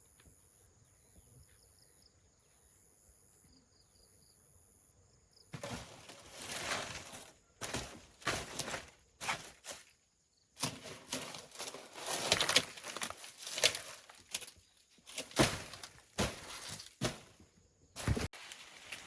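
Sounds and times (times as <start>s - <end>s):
rustling and scraping: 5.6s - 10.0s, 10.6s - 19.0s.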